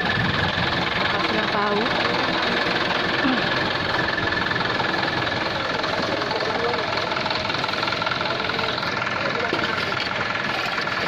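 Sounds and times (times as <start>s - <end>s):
engine running: 0.0s - 11.0s
faint voices: 4.8s - 11.0s.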